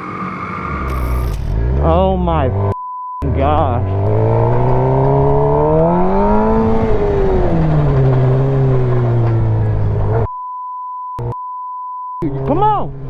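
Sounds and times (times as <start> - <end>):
vehicle engine running loudly: 0.8 - 10.3.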